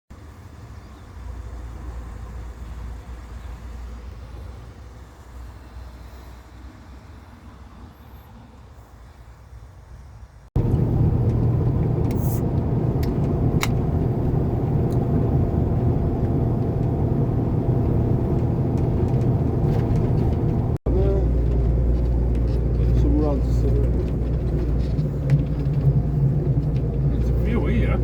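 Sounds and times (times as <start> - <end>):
stock car engine rumbling: 10.6 - 28.0.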